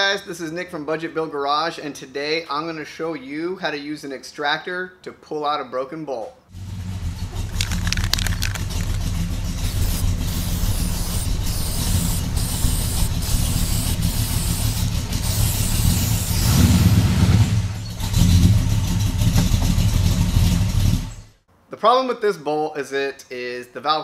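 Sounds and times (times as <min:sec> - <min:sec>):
car engine idling: 0:06.6 - 0:16.4.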